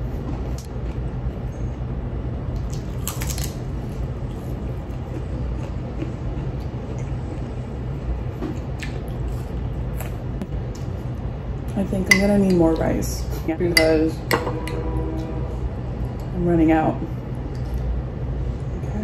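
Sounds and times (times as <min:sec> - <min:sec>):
chewing crisp salad: 0:02.6 - 0:11.0
steady low rumble: 0:03.6 - 0:19.0.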